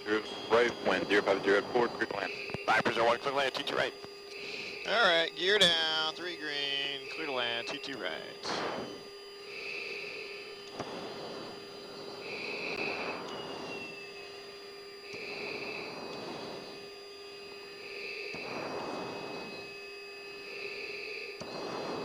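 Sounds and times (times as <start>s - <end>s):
jet cockpit hum: 0.0s - 22.0s
breathing through oxygen mask: 4.3s - 4.9s, 8.4s - 14.0s, 15.0s - 17.0s, 17.6s - 19.7s, 20.3s - 22.0s.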